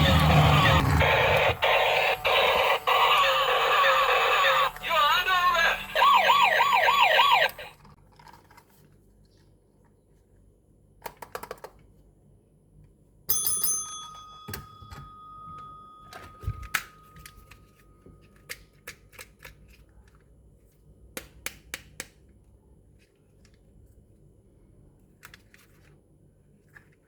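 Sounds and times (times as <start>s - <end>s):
plastic toy parts tapping: 11.0s - 11.8s
bell-like ringing tone: 13.3s - 16.4s.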